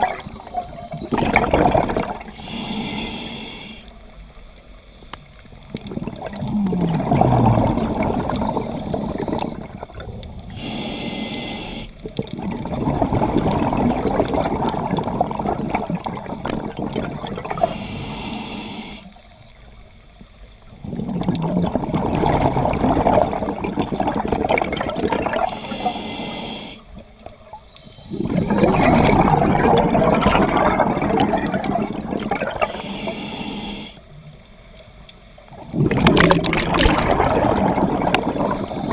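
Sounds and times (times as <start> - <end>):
bubbling regulator exhaust: 0.0 - 3.2, 5.7 - 19.0, 20.8 - 26.5, 28.1 - 33.8, 35.6 - 38.9
regulator inhale hiss: 2.3 - 5.5, 10.5 - 12.0, 17.6 - 19.3, 25.4 - 27.1, 32.6 - 34.2, 37.9 - 38.9.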